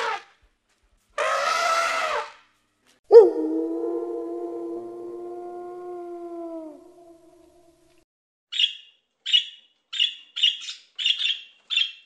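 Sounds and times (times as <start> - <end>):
elephant trumpeting: 1.2 - 2.3
wolf howling: 3.1 - 7.8.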